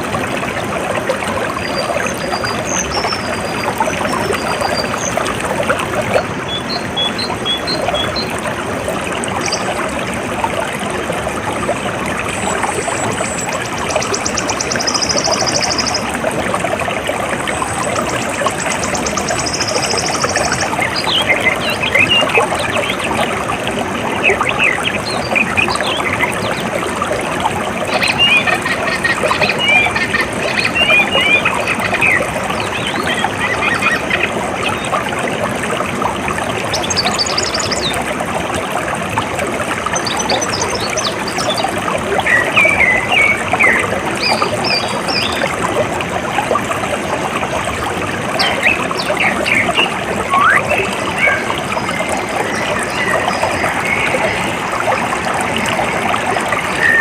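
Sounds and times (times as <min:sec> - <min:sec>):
running water flowing: 0:00.0 - 0:57.0
birds chirping: 0:12.4 - 0:16.1, 0:17.6 - 0:23.3, 0:27.9 - 0:34.9, 0:48.4 - 0:54.8.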